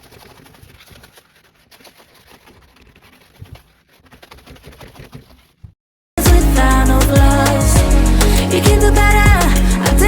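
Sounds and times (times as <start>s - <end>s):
sponge scrubbing: 0.0s - 5.8s.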